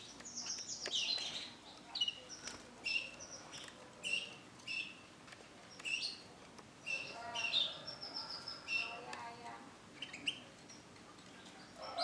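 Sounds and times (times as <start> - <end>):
canary chirping: 0.0 - 5.1, 5.7 - 9.1, 10.0 - 10.9.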